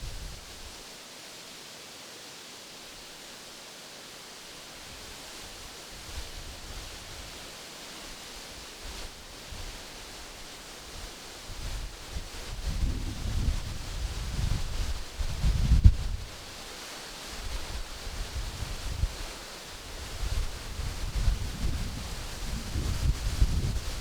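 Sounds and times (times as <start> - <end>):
wind rumbling on microphone: 0.0 - 0.8, 10.9 - 16.6, 17.3 - 24.0
wind rustling leaves: 0.0 - 24.0.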